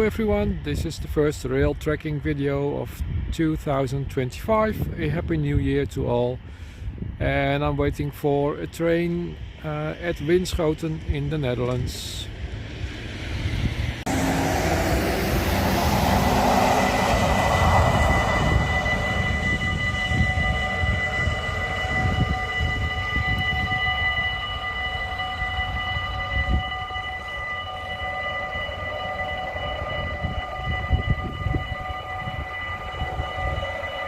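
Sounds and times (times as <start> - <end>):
train rumble: 0.0 - 34.0
high steady tones: 8.8 - 34.0
train rushing past: 9.3 - 34.0.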